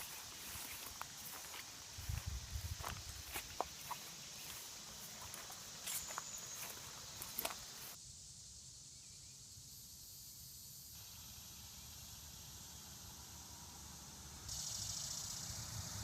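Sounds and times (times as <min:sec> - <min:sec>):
footsteps: 0:00.0 - 0:08.0
high-pitched hiss: 0:00.0 - 0:16.0.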